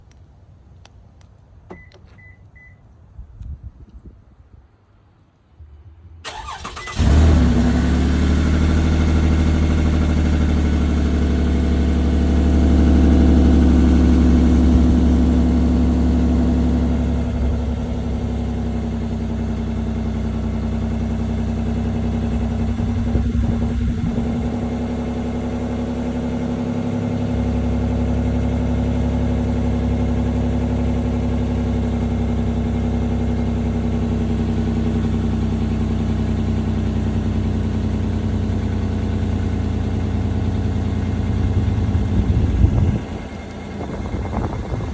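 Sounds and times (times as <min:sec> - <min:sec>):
car engine idling: 0:06.2 - 0:44.9
starter motor cranking: 0:06.3 - 0:07.2.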